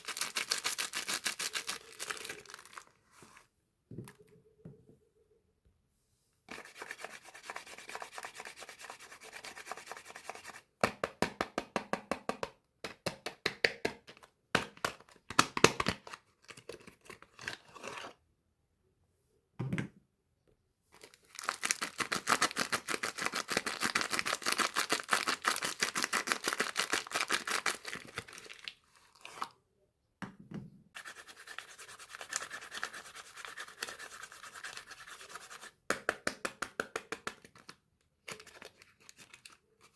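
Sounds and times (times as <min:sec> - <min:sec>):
wrappers crinkling and tearing: 0:00.0 - 0:02.9, 0:21.0 - 0:28.7.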